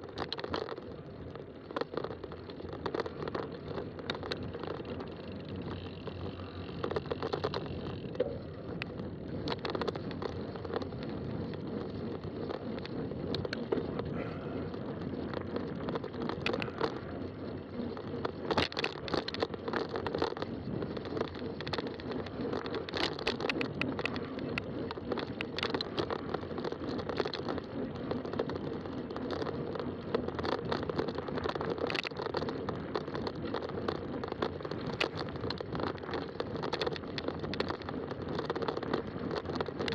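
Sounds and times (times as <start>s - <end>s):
bicycle tyres rumbling on trail: 0.0s - 39.9s
bike clicking and rattling: 0.0s - 39.9s.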